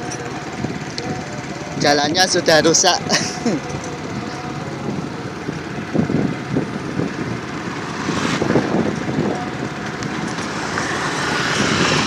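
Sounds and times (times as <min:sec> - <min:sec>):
vehicle rumble on rough road: 0:00.0 - 0:12.0.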